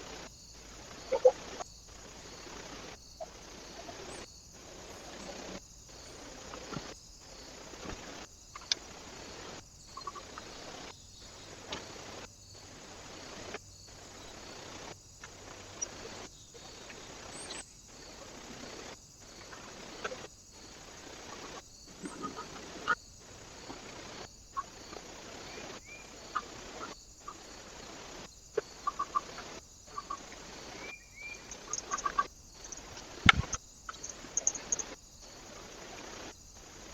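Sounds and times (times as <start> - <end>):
microphone hiss: 0.0 - 36.9
faint bird chirps: 1.0 - 1.6, 9.9 - 11.4, 24.5 - 27.5, 28.6 - 35.0.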